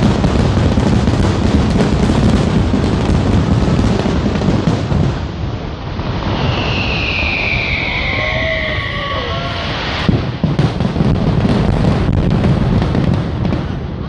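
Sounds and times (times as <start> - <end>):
fireworks booming and crackling: 0.0 - 14.0
high falling whistling tone: 6.2 - 10.1.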